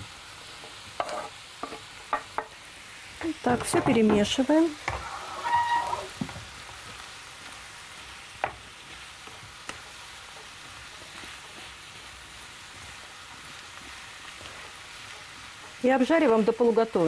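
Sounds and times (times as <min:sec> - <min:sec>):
vegetables sizzling in oil: 0:00.0 - 0:17.0
spatula knocking on a pan: 0:08.4 - 0:08.6.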